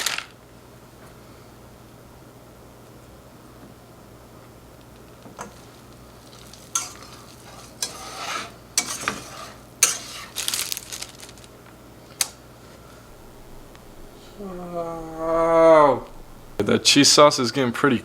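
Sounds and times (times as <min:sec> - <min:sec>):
light sizzle: 0:00.0 - 0:18.0
utensil scraping a pan: 0:06.3 - 0:10.6.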